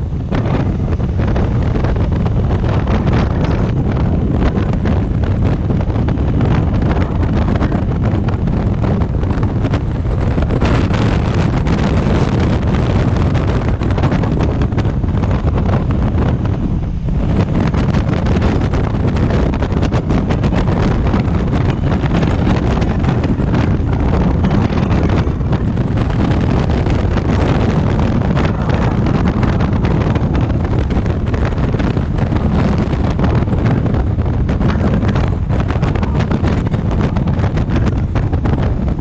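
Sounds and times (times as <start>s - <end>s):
motorcycle engine running: 0.0s - 39.0s
wind buffeting microphone: 0.0s - 39.0s.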